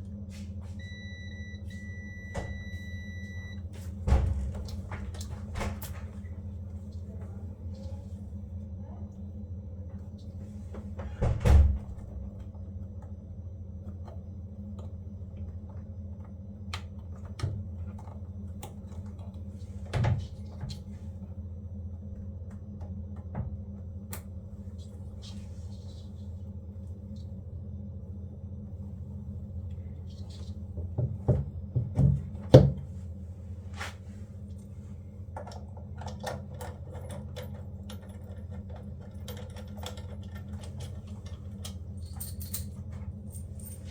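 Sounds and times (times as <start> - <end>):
steady low hum: 0.0 - 43.9
knocks and clatter of parts: 35.3 - 43.9.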